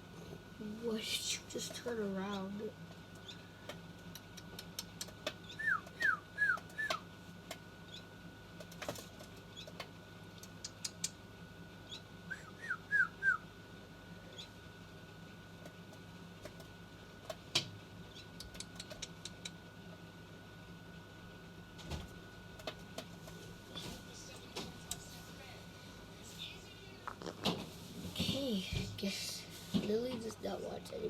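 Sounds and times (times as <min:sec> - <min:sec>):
baby bird chirping: 0:01.9 - 0:02.6, 0:03.2 - 0:03.6, 0:04.6 - 0:07.1, 0:11.8 - 0:13.5, 0:14.2 - 0:14.6.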